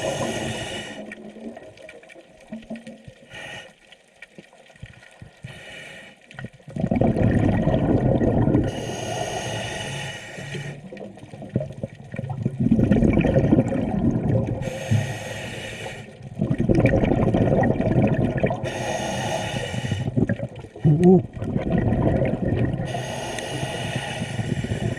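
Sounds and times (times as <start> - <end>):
regulator inhale hiss: 0.0 - 1.1, 3.3 - 3.8, 5.4 - 6.3, 8.7 - 10.9, 14.6 - 16.2, 18.6 - 20.2, 22.9 - 24.9
exhaled bubbles rumbling: 0.0 - 3.3, 6.4 - 9.0, 10.6 - 15.1, 16.1 - 24.9.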